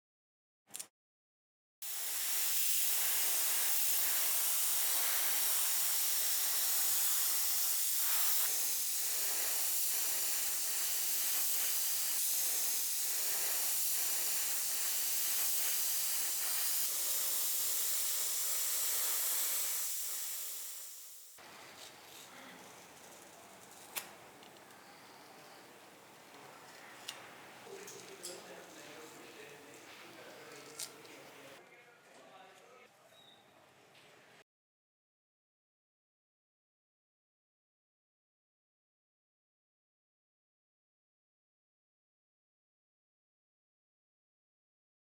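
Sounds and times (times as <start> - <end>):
spray nozzle hissing: 1.8 - 31.6.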